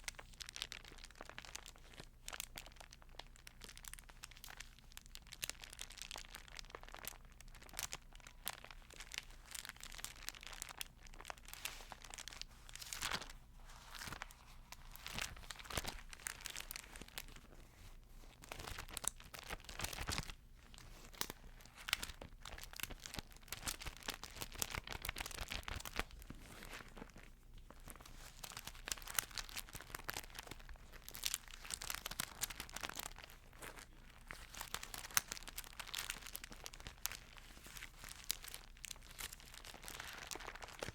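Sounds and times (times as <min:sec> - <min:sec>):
paper pages turning: 0:12.8 - 0:17.5.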